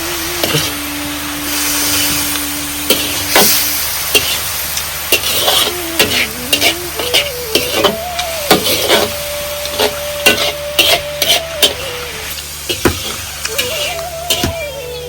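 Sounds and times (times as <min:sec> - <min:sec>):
food sizzling in a pan: 0:00.0 - 0:15.0
utensil scraping a pan: 0:05.1 - 0:11.9.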